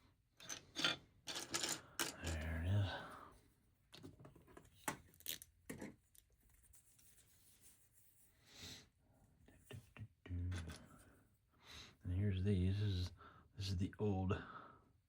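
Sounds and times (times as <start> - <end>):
soft rustle: 6.2 - 8.4.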